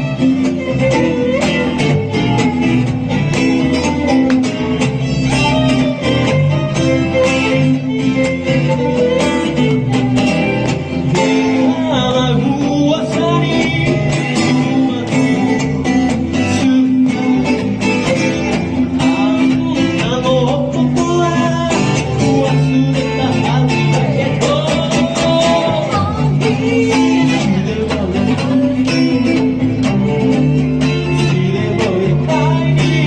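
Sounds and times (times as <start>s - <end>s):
live country band with guitar: 0.0s - 33.0s.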